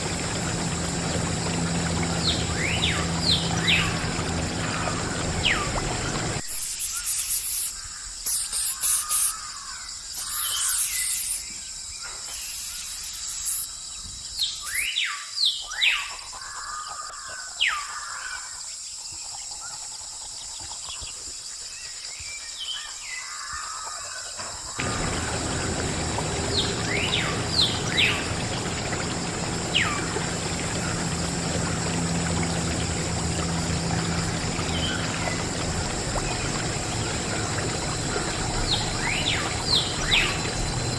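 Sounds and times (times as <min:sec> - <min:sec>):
small birds chirping: 0:02.1 - 0:15.0
steady high hiss: 0:06.4 - 0:14.9.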